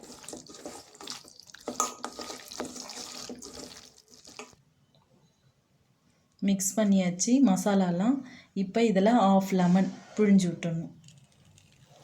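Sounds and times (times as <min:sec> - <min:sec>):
wet mixing of chicken in marinade: 0:00.0 - 0:04.6.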